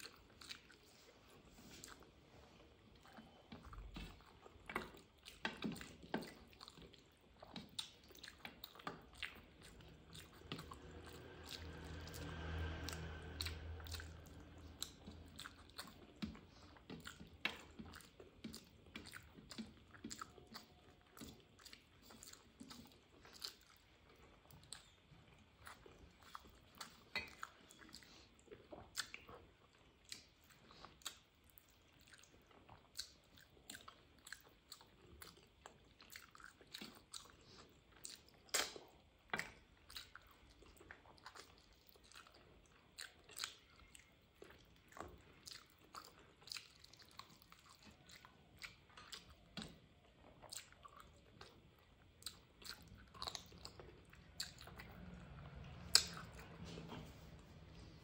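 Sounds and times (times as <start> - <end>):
wet chewing and lip smacking: 0.0 - 58.0
low hum: 9.3 - 16.4, 52.9 - 58.0.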